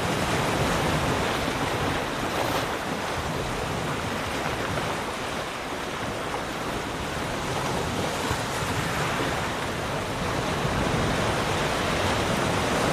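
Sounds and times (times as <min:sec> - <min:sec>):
ocean waves breaking: 0:00.0 - 0:12.9.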